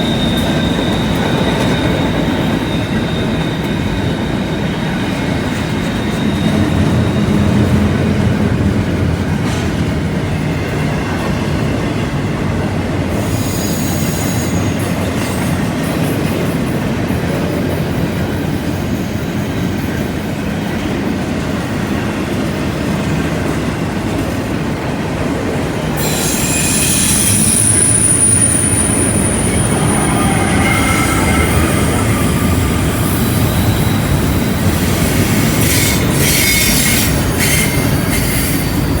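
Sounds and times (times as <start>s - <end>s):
train wheels rumbling on rail: 0.0s - 39.0s
wheel flange squeal: 13.2s - 15.0s, 26.0s - 39.0s.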